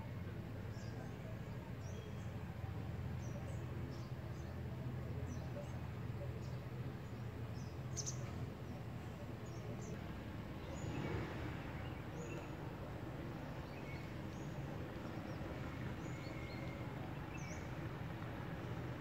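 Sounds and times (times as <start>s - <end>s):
low outdoor rumble: 0.0s - 19.0s
small birds chirping: 6.4s - 8.8s, 13.4s - 18.8s.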